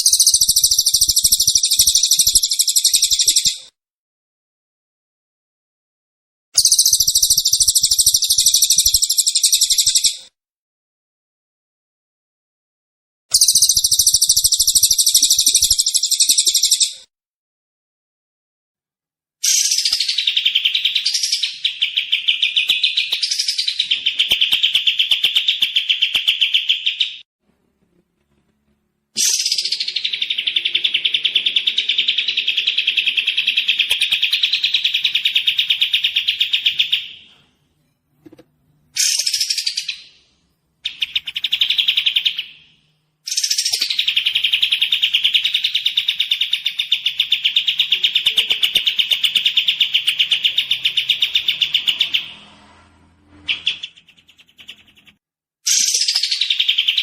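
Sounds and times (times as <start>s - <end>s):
songbird trilling: 0.0s - 3.6s, 6.6s - 10.2s, 13.4s - 16.9s, 29.2s - 37.2s.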